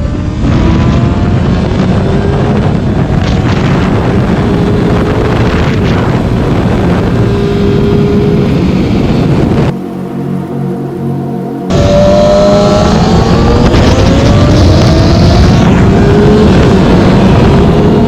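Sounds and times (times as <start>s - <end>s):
motorcycle engine running: 0.0s - 9.7s
wind noise on microphone: 0.0s - 9.8s, 11.7s - 18.0s.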